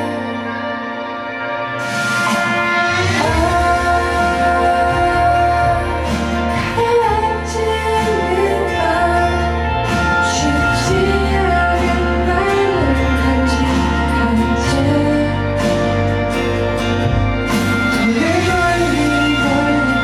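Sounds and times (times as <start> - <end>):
instrumental accompaniment: 0.0 - 20.0
steady bass line: 0.0 - 20.0
woman singing pop song: 0.0 - 20.0.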